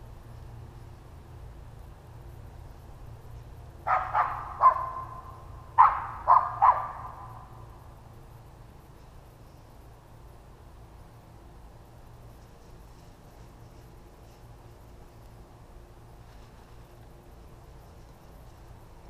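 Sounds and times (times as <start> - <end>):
dog barking: 3.9 - 5.2, 5.8 - 7.4.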